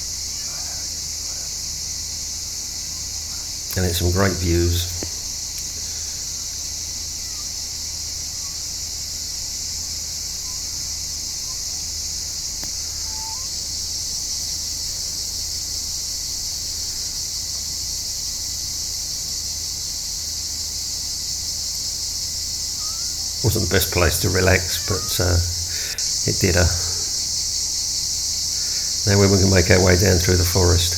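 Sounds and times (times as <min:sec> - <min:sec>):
insects buzzing: 0:00.0 - 0:30.9
faint bird chirps: 0:02.8 - 0:08.8, 0:10.3 - 0:14.3, 0:22.6 - 0:27.3.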